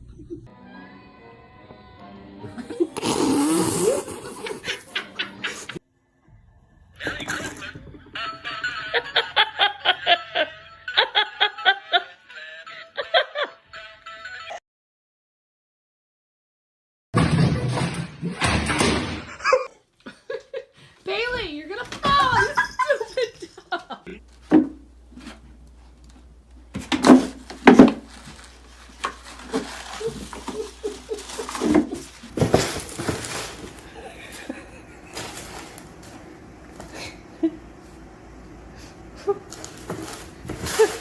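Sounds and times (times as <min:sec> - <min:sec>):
music: 0:00.5 - 0:08.4
person laughing in bursts: 0:03.8 - 0:05.8, 0:07.0 - 0:14.6, 0:19.3 - 0:20.7, 0:22.0 - 0:24.2, 0:29.5 - 0:32.3, 0:33.9 - 0:35.6.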